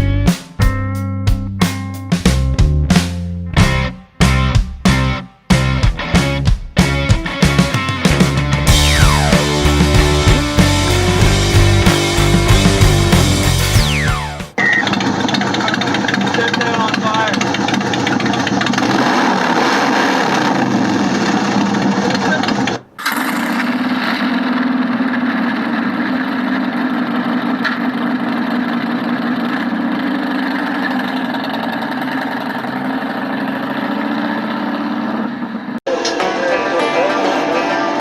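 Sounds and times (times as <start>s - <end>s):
motorcycle engine running: 6.8s - 35.8s.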